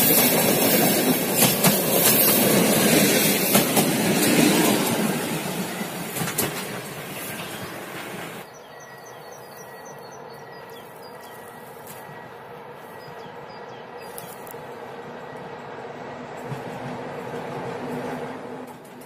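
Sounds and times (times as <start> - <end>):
train wheels clicking over rail joints: 0.0 - 8.5, 16.3 - 19.0.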